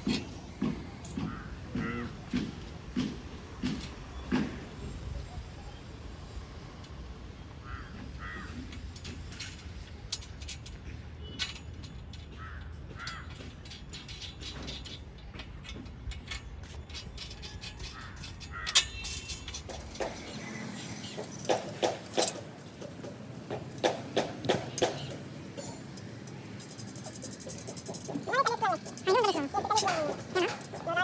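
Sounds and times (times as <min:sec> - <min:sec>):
sharp clicks and knocks: 0:08.5 - 0:31.0
bird calling: 0:23.8 - 0:31.0.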